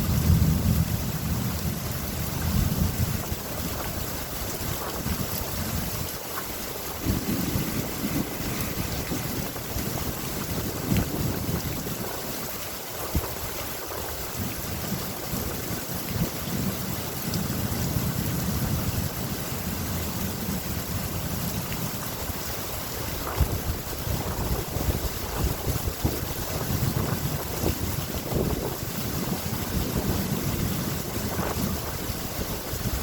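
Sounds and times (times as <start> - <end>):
rolling thunder rumble: 0.0 - 6.1, 7.0 - 12.3, 23.2 - 33.0
steady rain hiss: 0.0 - 33.0.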